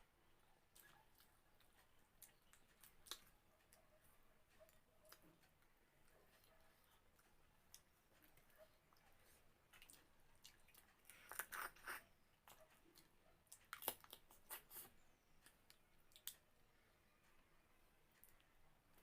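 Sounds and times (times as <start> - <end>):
person chewing food: 0.7 - 3.3, 6.3 - 16.4.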